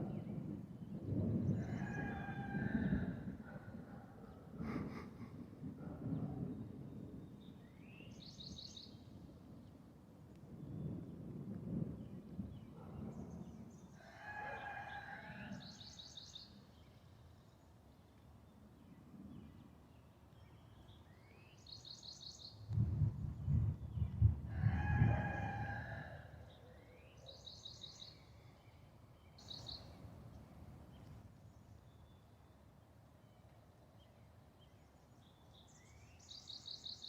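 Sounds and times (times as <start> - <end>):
low rumble of thunder: 0.0 - 15.8, 22.6 - 26.6
rooster crowing: 1.6 - 3.2, 14.0 - 15.6, 24.5 - 26.4.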